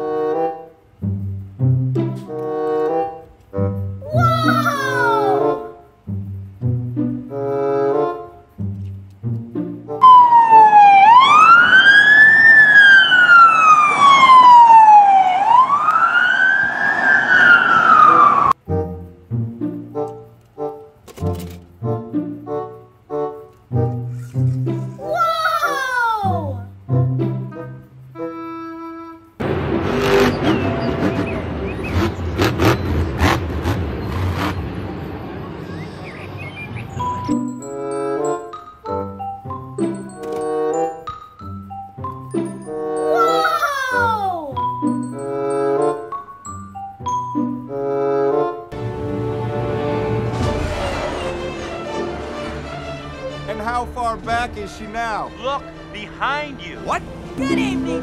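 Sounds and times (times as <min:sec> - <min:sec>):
electronic siren wailing: 0:10.0 - 0:18.6
monster truck engine rumbling: 0:29.4 - 0:37.1, 0:48.8 - 0:58.0.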